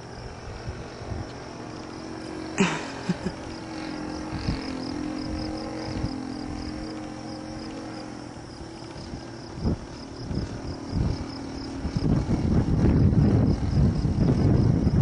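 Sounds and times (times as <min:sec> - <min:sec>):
fast cricket pulsing: 0:00.0 - 0:15.0
model plane engine droning: 0:00.0 - 0:15.0
wind thumps on microphone: 0:08.9 - 0:15.0.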